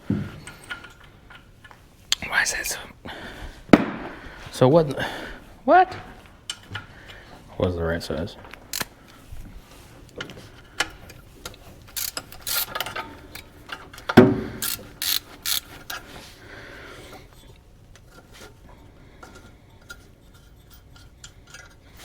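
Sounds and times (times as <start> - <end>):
hand ratchet clicking: 8.7 - 9.0, 10.8 - 16.0
metal tools clinking: 10.2 - 16.0.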